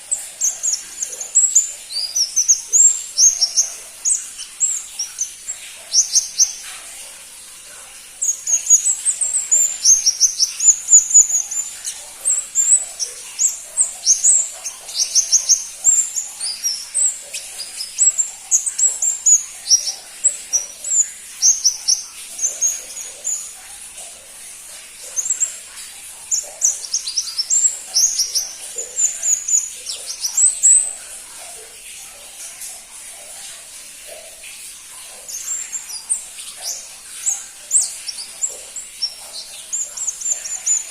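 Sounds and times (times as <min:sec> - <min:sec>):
bird high thin chirps: 0:07.9 - 0:23.6.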